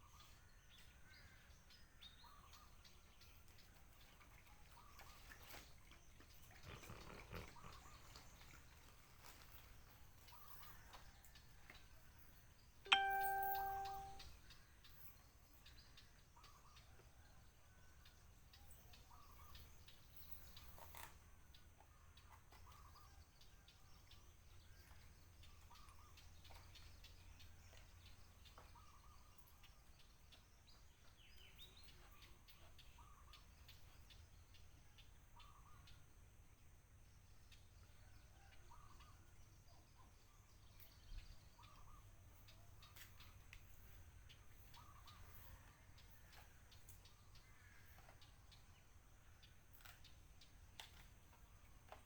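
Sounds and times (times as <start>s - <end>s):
ringing chime ding: 12.9s - 14.2s.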